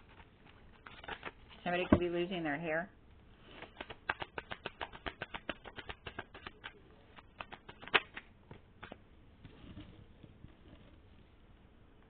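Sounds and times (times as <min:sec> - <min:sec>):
cards shuffled by hand: 0:00.0 - 0:02.0, 0:03.4 - 0:09.0.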